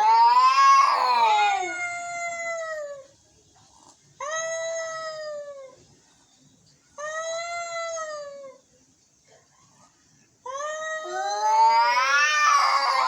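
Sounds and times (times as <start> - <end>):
angry cat wailing: 0.0 - 2.4, 10.5 - 13.0.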